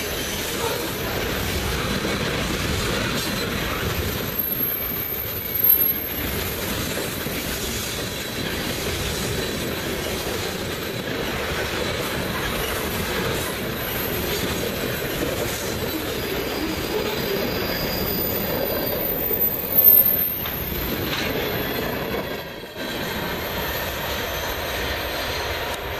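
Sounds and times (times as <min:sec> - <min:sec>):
freight train wheels rumbling: 0:00.0 - 0:25.9
thin wheel squeal: 0:04.2 - 0:06.3, 0:15.9 - 0:21.8.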